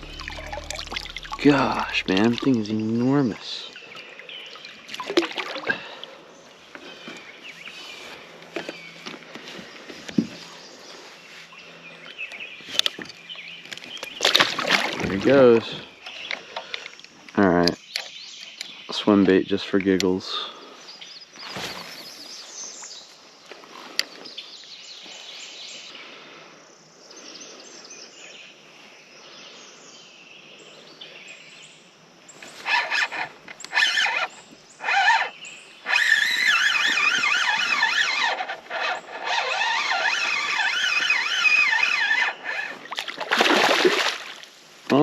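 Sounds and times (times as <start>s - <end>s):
high wavering squealing tones: 0.0s - 3.8s, 32.6s - 42.8s
fish splashing at water surface: 42.8s - 44.4s.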